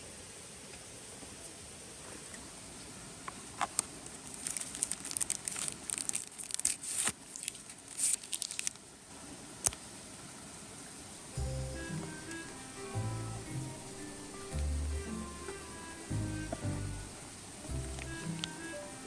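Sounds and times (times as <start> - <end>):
steady hiss: 0.0 - 19.0
crinkling and rustling: 3.2 - 9.0, 13.6 - 19.0.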